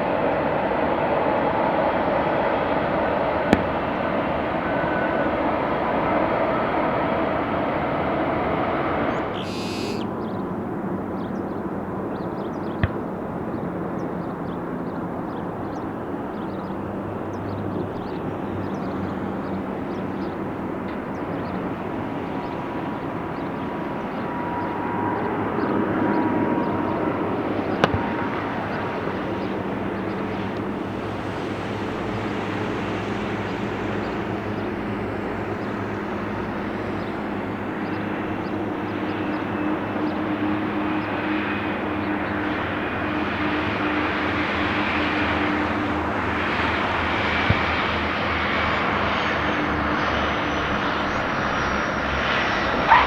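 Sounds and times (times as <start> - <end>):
aircraft engine hum: 0.0 - 53.0
sharp clicks: 9.4 - 10.0.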